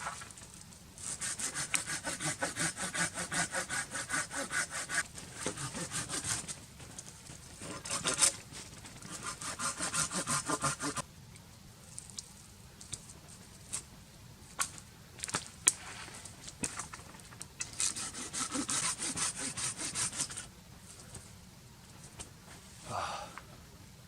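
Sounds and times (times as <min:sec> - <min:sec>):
hand saw cutting wood: 0:01.0 - 0:06.6, 0:07.6 - 0:08.4, 0:09.0 - 0:11.0, 0:17.6 - 0:20.5.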